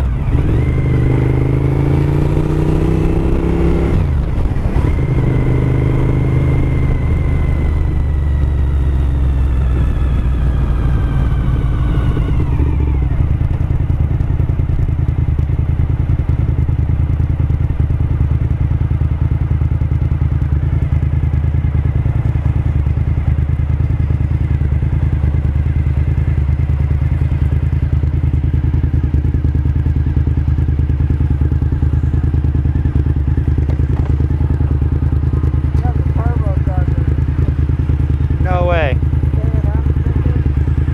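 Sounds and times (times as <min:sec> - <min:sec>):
motorcycle engine slowing down: 0:00.0 - 0:40.9.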